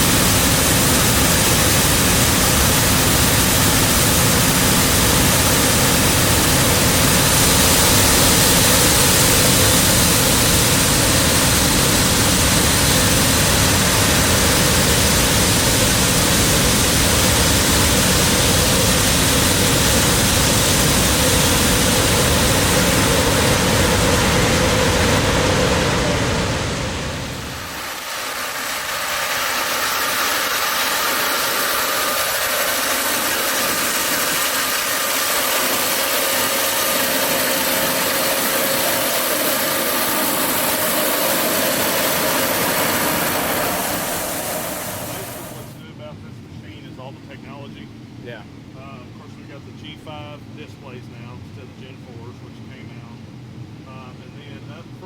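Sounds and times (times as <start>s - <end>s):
combine harvester running: 0.0s - 47.7s.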